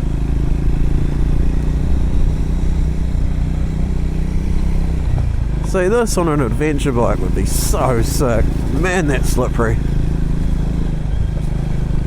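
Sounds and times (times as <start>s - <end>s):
motorcycle engine running: 0.0s - 12.0s
tyres on wet gravel: 5.7s - 10.6s.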